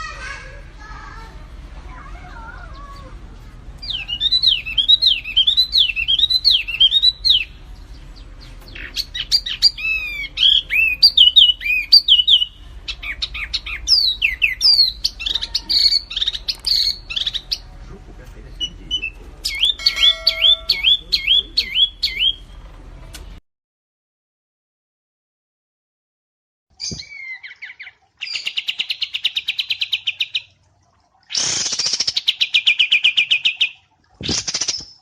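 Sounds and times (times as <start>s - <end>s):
whistled bird phrases: 3.8s - 7.6s, 8.7s - 17.6s, 18.6s - 22.5s, 26.8s - 30.4s
bird chirps and trills: 3.8s - 17.7s, 18.6s - 22.6s, 26.8s - 30.6s.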